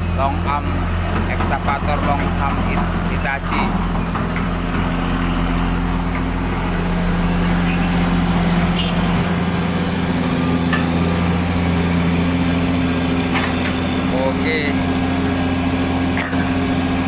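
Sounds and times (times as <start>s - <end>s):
heavy diesel engine droning: 0.0s - 17.0s.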